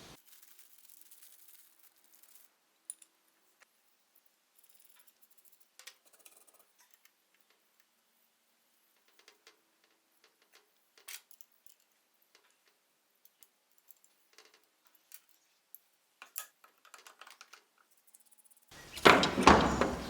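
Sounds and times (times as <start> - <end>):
metal parts clicking: 9.0 - 15.4, 16.2 - 20.0
loud clattering scraping: 18.8 - 20.0.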